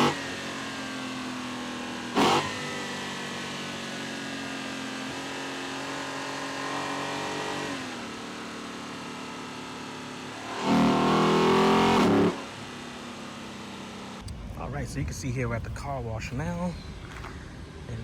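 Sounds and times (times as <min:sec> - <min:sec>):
engine accelerating: 0:00.0 - 0:18.0
engine induction noise: 0:10.2 - 0:18.0.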